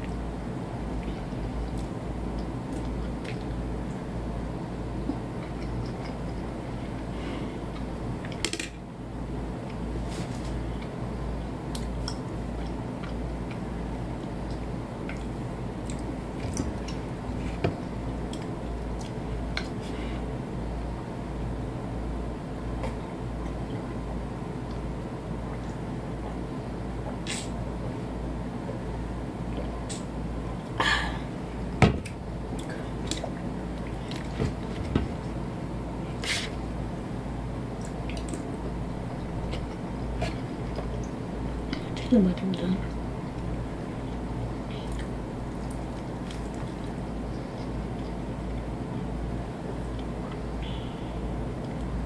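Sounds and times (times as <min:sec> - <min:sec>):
steady low hum: 0:00.0 - 0:52.0
person chewing: 0:37.8 - 0:41.9.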